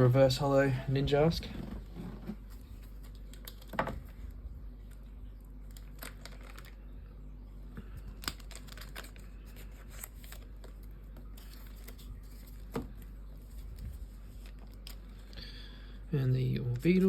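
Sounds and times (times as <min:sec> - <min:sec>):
clicks and rustles of cards: 0:02.2 - 0:06.9, 0:07.8 - 0:15.4
trading cards being handled: 0:02.3 - 0:06.9, 0:07.8 - 0:15.4.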